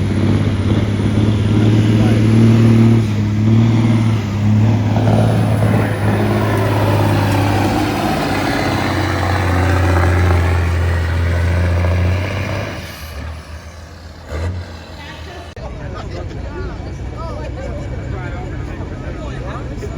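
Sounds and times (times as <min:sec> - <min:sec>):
truck engine revving under load: 0:00.0 - 0:15.6.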